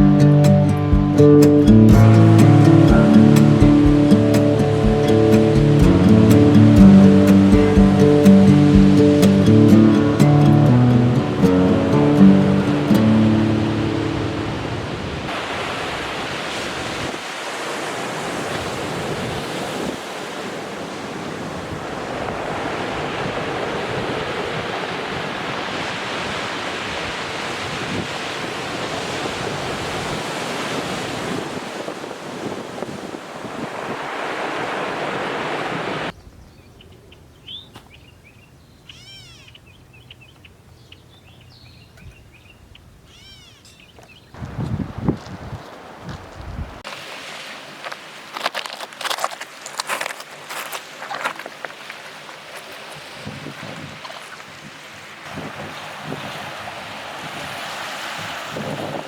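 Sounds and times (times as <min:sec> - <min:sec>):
ocean surf washing onto beach: 0:00.0 - 0:36.2, 0:44.4 - 0:59.0
small bird chirps: 0:36.2 - 0:44.3.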